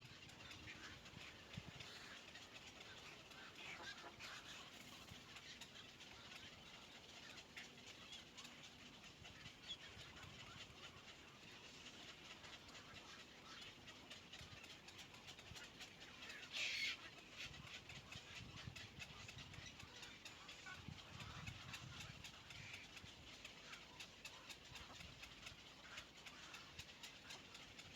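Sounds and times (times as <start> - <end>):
faint bird sounds: 0.0 - 27.9.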